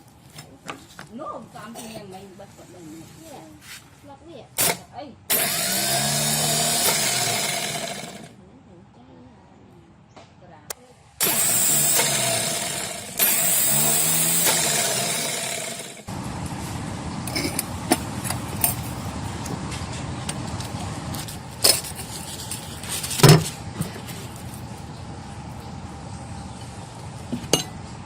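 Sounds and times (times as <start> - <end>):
starter motor whirring: 4.6 - 8.3, 11.2 - 16.6.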